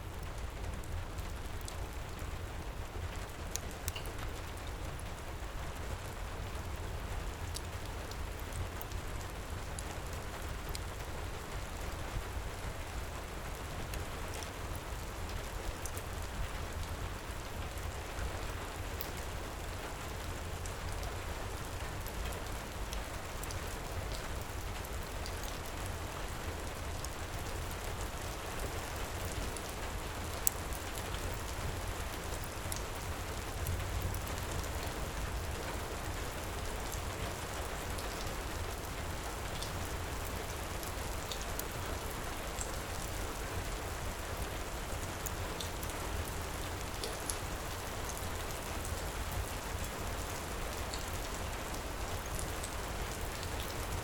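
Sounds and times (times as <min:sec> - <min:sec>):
heavy rain: 0:00.0 - 0:54.0
wood fire crackling: 0:00.2 - 0:05.1.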